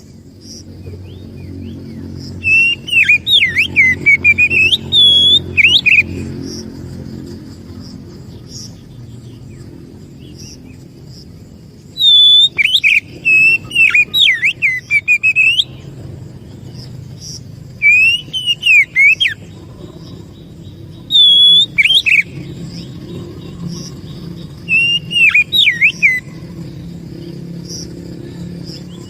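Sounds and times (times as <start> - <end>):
steady low hum: 0.0 - 29.0
bird singing whistled phrases: 2.4 - 6.3, 11.9 - 15.9, 17.8 - 19.5, 21.0 - 23.9, 24.6 - 26.4.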